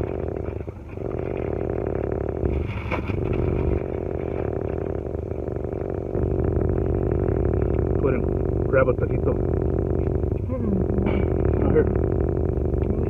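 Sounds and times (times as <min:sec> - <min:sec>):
car engine idling inside cabin: 0:00.0 - 0:13.0.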